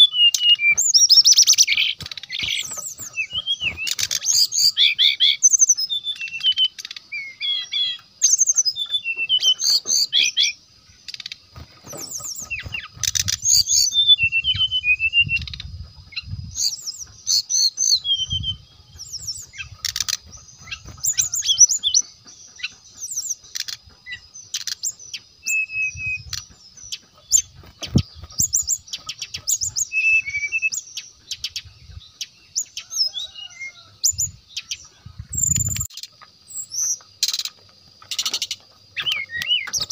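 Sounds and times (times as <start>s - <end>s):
bird chirping and whistling: 0.0s - 37.5s, 38.1s - 39.9s.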